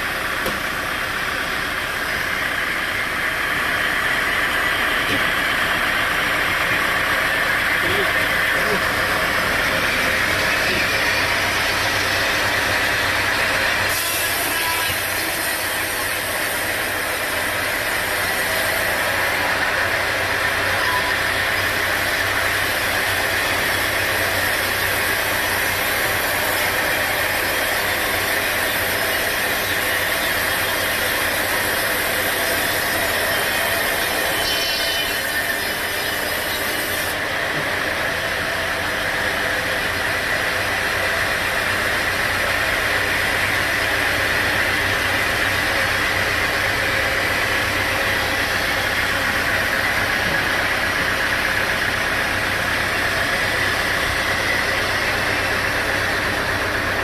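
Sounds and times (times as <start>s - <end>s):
saw blade cutting timber: 7.8s - 37.2s.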